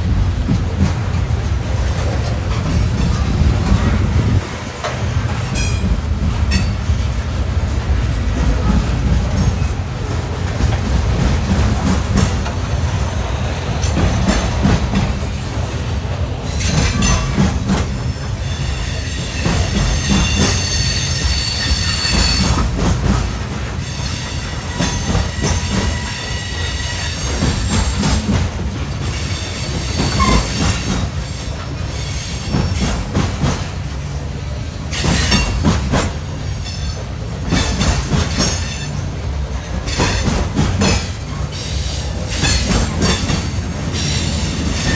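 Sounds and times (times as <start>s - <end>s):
train wheels rumbling on rail: 0.0s - 44.9s
train wheels squealing: 13.8s - 33.2s, 34.9s - 44.9s.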